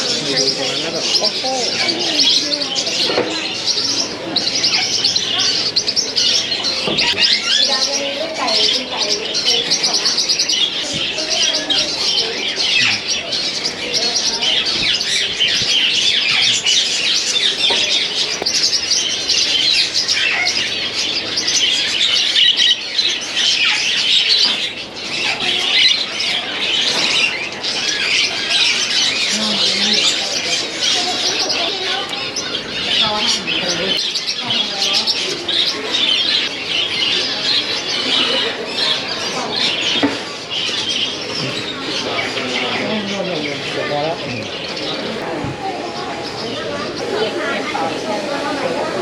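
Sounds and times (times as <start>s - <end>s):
caged birds chirping: 0.0s - 49.0s.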